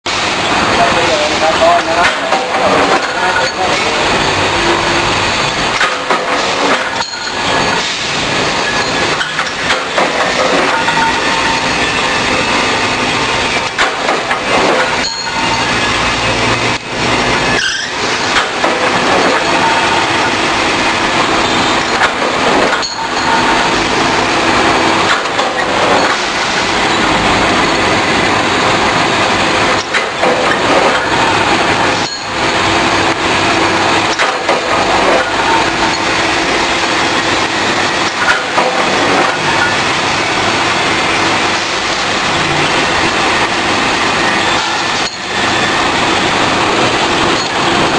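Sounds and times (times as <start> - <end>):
metalworking machinery running: 0.1 - 47.9.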